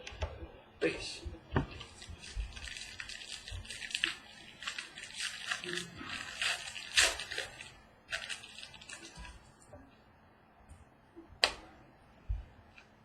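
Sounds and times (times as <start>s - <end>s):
trading cards rustling: 1.7s - 9.4s.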